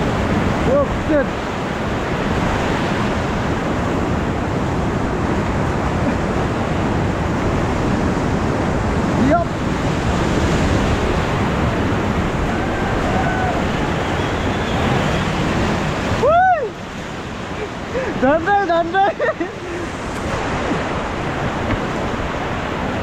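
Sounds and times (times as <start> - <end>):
whitewater rapids rushing: 0.0 - 23.0
wind buffeting microphone: 0.0 - 23.0
person shouting: 12.6 - 13.7, 16.2 - 16.7.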